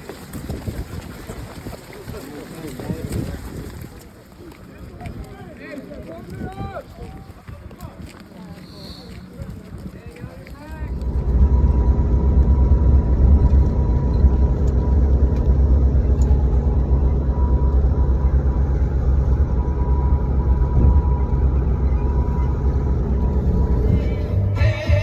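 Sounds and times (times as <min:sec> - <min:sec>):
vehicle engine rumbling: 0:06.2 - 0:25.0.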